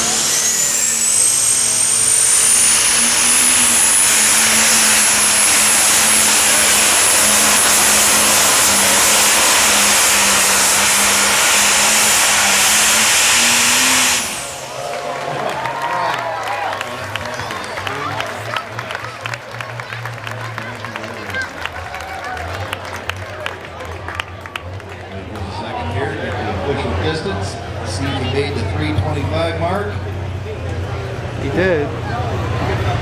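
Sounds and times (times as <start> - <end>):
turbo whine: 0.0 - 19.2
tractor engine at full throttle: 0.0 - 21.9, 22.7 - 33.0.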